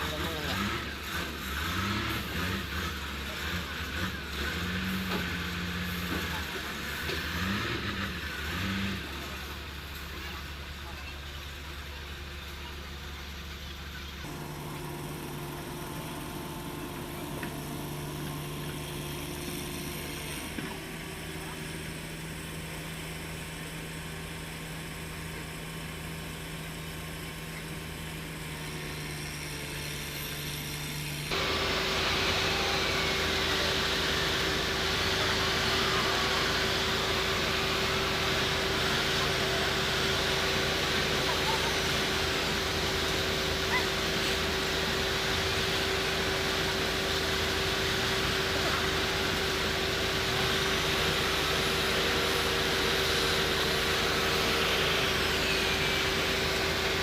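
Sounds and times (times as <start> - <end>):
engine running: 0.0 - 57.0
loud hissing noise: 31.3 - 57.0.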